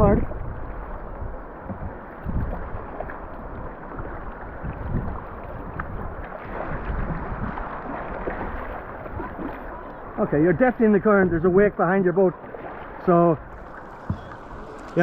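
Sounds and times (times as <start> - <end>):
wind buffeting microphone: 0.0 - 11.8, 12.6 - 15.0
river water rushing: 6.2 - 11.0, 11.8 - 15.0.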